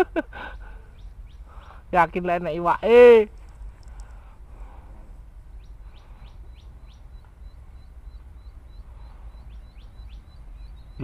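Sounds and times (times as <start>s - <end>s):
bird calling: 0.4s - 2.1s, 5.5s - 11.0s.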